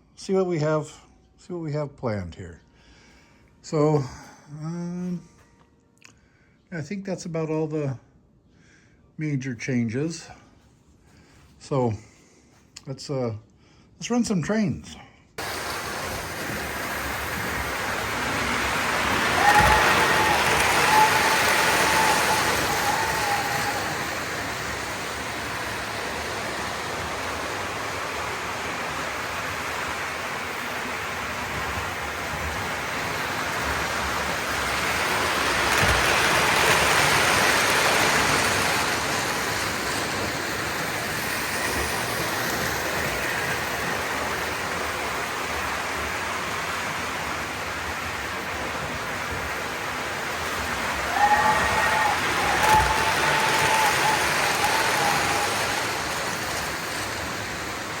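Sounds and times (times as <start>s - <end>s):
model train rumbling on track: 15.4s - 58.0s.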